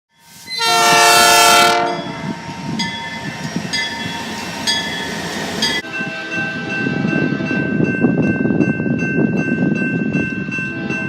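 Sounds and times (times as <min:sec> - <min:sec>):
train horn blast: 0:00.5 - 0:02.2, 0:05.8 - 0:07.8, 0:10.7 - 0:11.0
train wheels rumbling: 0:00.5 - 0:11.0
bell ringing: 0:01.9 - 0:11.0.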